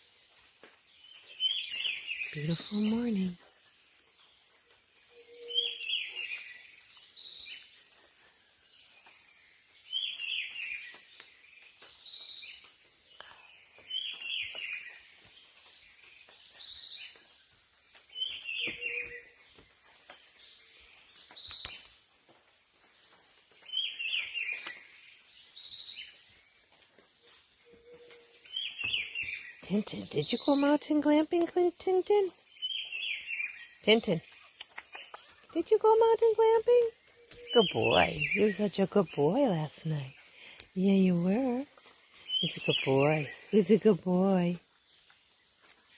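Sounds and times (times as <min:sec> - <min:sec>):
faint bird chirps: 0:01.0 - 0:17.4, 0:18.1 - 0:22.0, 0:23.4 - 0:30.6
bird singing a falling phrase: 0:18.1 - 0:19.6, 0:27.8 - 0:44.6.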